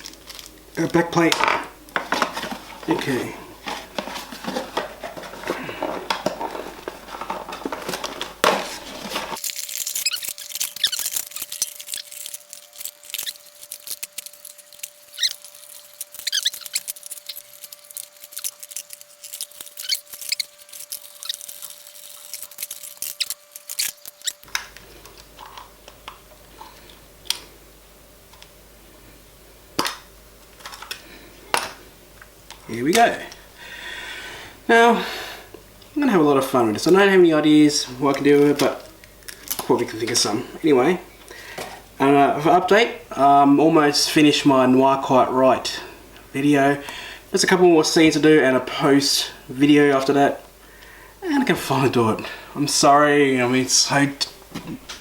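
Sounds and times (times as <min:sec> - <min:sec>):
squeaky plastic rubbing: 0:02.0 - 0:24.5
plastic parts clicking and tapping: 0:29.8 - 0:30.0.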